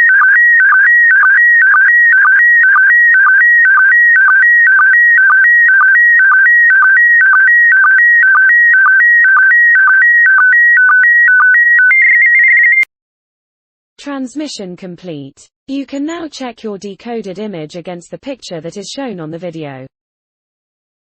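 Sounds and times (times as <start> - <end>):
warbling data signal tones: 0.0 - 12.8.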